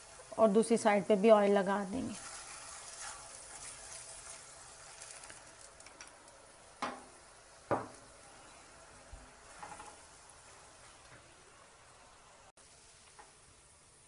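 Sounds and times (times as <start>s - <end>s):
flatbread sizzling in oil: 0.0s - 14.0s
metal spoon spreading oil: 2.2s - 5.4s.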